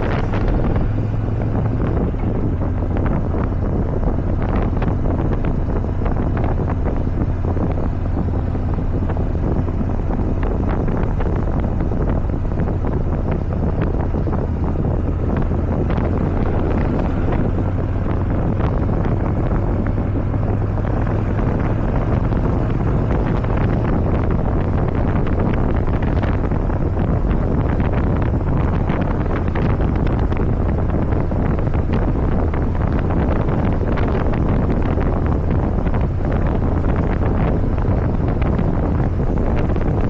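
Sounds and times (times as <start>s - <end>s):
motorcycle engine drone: 0.0s - 40.0s
wind buffeting microphone: 0.0s - 40.0s.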